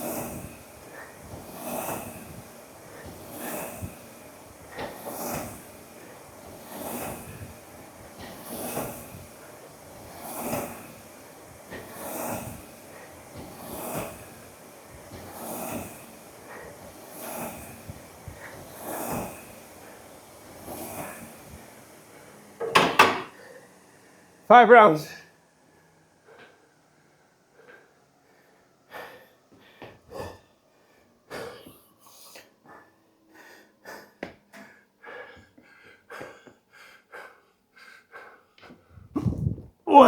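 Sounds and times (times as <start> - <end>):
ski erg fan whooshing: 0.0 - 30.3, 38.1 - 40.0
heavy breathing: 10.4 - 20.1, 27.5 - 40.0.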